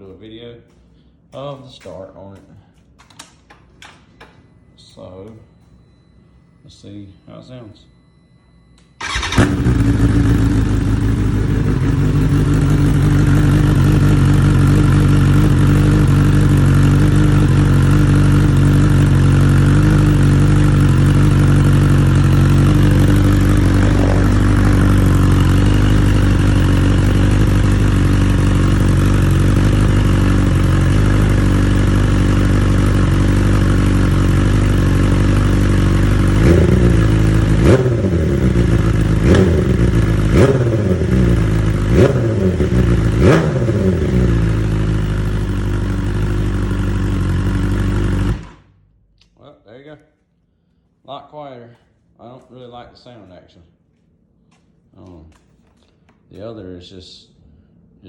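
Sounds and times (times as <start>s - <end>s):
engine throttle blips: 3.2s - 49.1s
engine idling: 9.0s - 48.8s.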